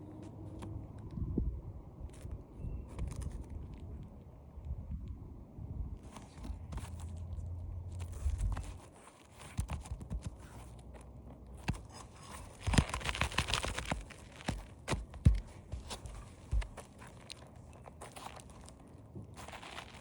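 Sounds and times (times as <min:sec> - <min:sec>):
scraping on roof shingles: 0:11.6 - 0:17.4.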